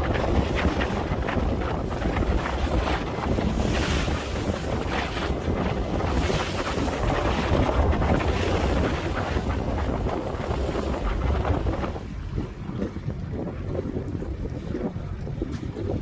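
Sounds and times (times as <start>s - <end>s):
water washing: 0.0s - 16.0s
wind buffeting microphone: 0.0s - 16.0s.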